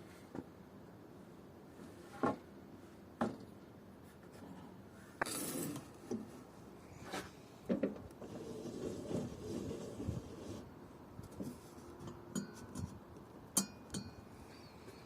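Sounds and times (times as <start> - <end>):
wood scraping: 7.0 - 10.7.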